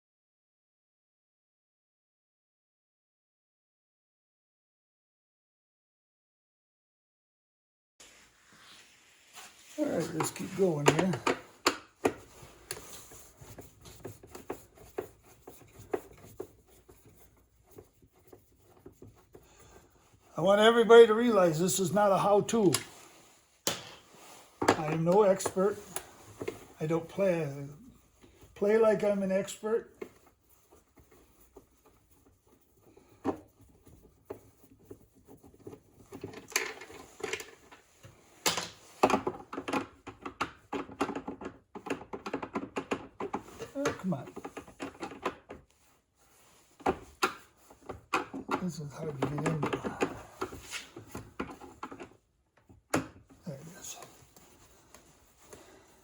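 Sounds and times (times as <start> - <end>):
plastic clicks and knocks: 10.8 - 12.8, 23.6 - 24.0, 38.4 - 45.6, 46.8 - 48.6.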